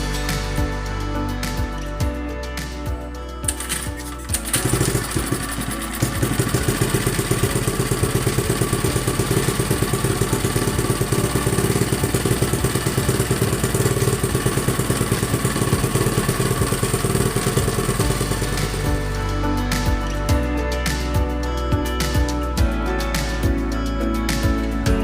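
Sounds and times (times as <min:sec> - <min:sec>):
small generator engine running: 0:03.5 - 0:19.5.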